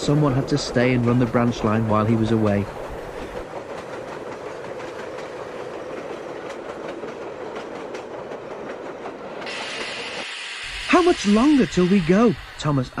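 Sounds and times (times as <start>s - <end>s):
train rumble: 0.0s - 13.0s
train wheels clicking over rails: 0.0s - 13.0s
steady hiss: 9.5s - 13.0s.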